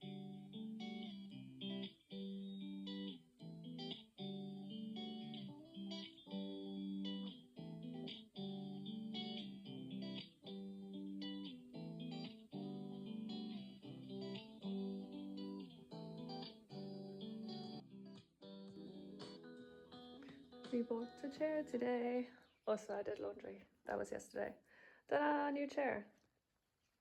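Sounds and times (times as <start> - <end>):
plucked guitar music: 0.0 - 22.4.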